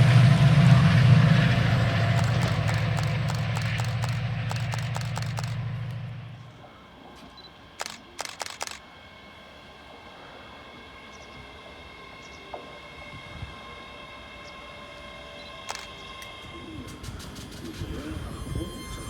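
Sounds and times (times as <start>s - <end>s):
train rumbling: 0.0s - 19.0s
sharp clicks: 2.1s - 6.0s, 7.8s - 8.8s, 15.7s - 16.3s.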